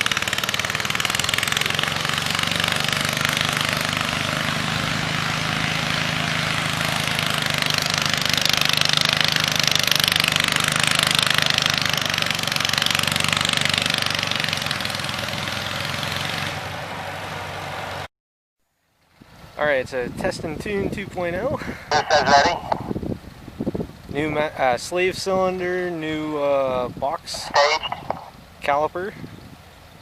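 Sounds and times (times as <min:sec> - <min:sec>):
tractor engine running: 0:00.0 - 0:17.9, 0:27.2 - 0:28.4.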